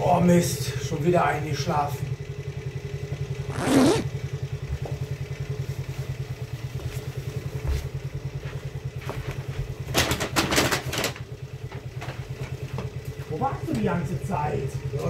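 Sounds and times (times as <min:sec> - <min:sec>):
scooter engine idling: 0:00.0 - 0:15.0
clatter: 0:04.3 - 0:13.9.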